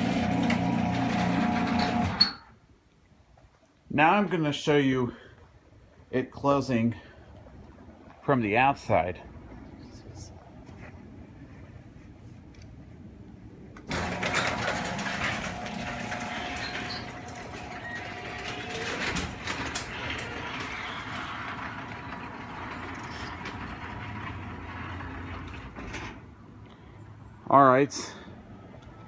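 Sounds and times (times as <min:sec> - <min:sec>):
garage door opener whirring: 0:00.0 - 0:02.4, 0:13.8 - 0:26.3.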